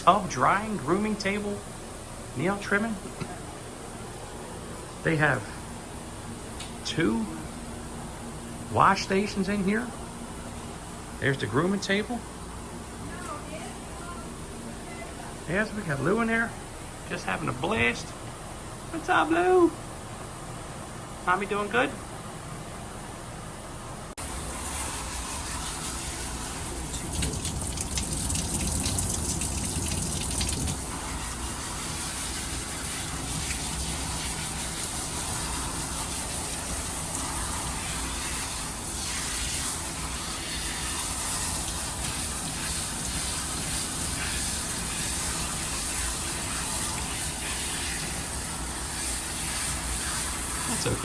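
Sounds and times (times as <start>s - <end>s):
hose water spraying: 24.2s - 51.0s.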